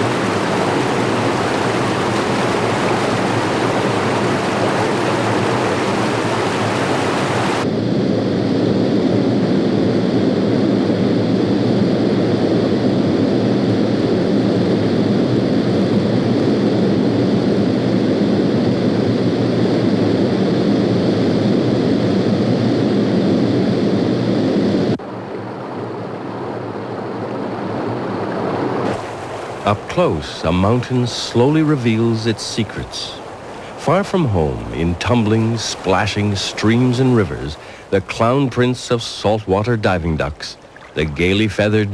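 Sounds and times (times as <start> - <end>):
mountain stream rushing: 0.0 - 7.6, 28.1 - 41.9.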